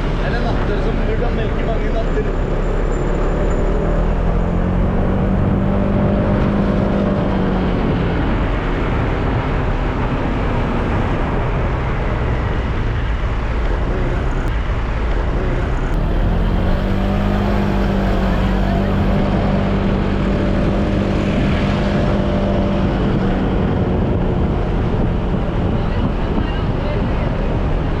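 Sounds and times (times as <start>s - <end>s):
wind rush on microphone: 3.6s - 28.0s
scooter engine running under load: 13.4s - 26.6s.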